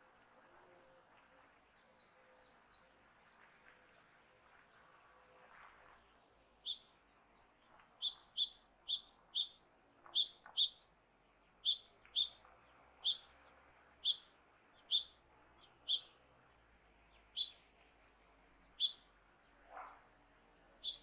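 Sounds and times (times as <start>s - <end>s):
bird chip calls: 8.0s - 10.8s, 11.6s - 12.4s, 13.0s - 13.3s, 14.0s - 15.2s, 15.8s - 16.1s, 17.3s - 17.6s, 18.8s - 19.0s.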